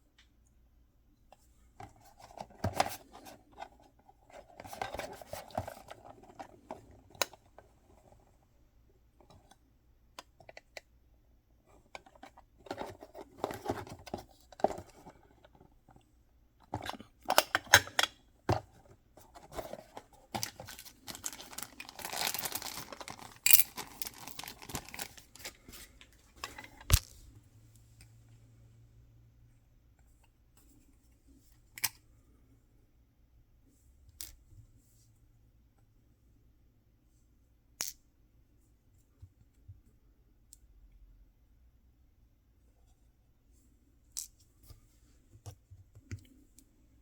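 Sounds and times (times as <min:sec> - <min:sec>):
packaging crinkling and tearing: 0:20.4 - 0:25.6.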